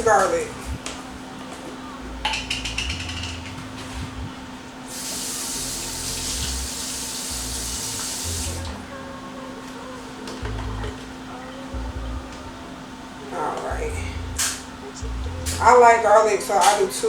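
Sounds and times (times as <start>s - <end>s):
spoon clicking against jar: 2.2s - 3.6s
kitchen tap running: 2.2s - 3.8s, 4.8s - 8.8s.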